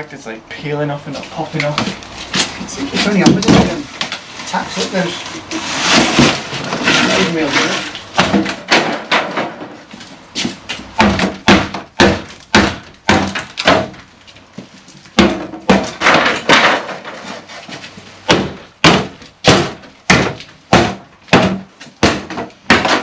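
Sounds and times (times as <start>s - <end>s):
hammer knocking on timber: 11.0s - 14.0s.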